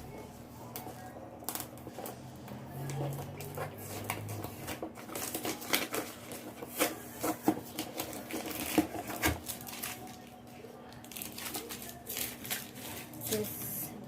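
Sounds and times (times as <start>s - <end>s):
packaging rustling: 2.9s - 13.7s.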